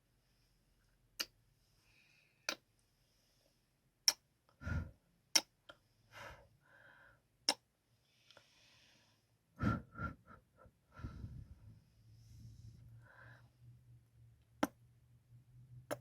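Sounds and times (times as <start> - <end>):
soft breath: 1.5 - 3.8, 4.6 - 5.0, 5.7 - 7.2, 8.0 - 13.8.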